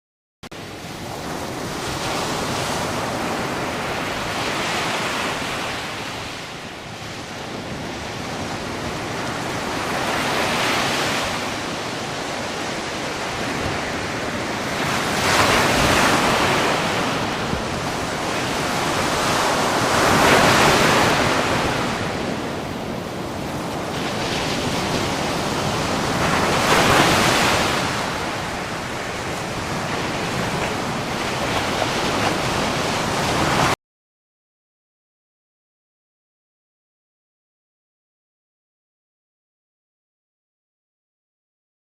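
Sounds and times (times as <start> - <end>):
sea waves breaking on shore: 0.6 - 33.8.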